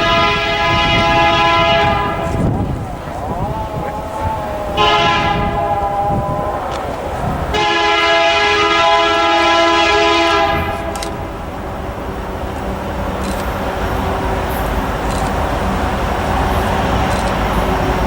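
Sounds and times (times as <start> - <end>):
locomotive air horn blasts: 0.0 - 2.6, 4.7 - 6.9, 7.5 - 11.3
rumble of passing train: 0.0 - 18.0.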